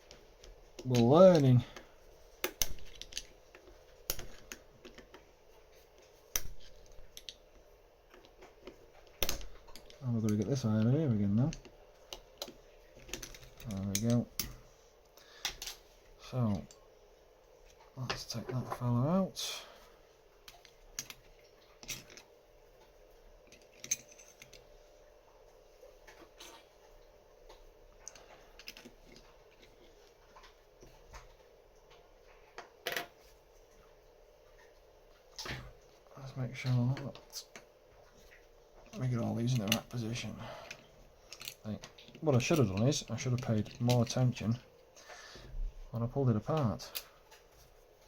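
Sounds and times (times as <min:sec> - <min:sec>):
metal lock parts clicking: 0:23.5 - 0:24.6, 0:41.3 - 0:44.2.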